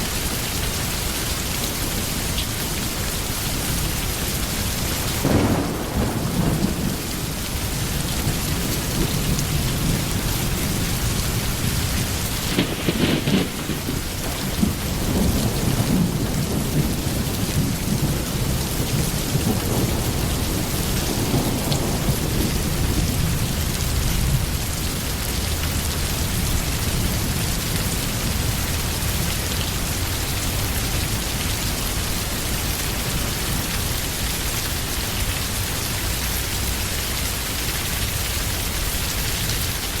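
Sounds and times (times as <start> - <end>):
heavy rain: 0.0 - 40.0
thunder rolling: 4.8 - 24.7.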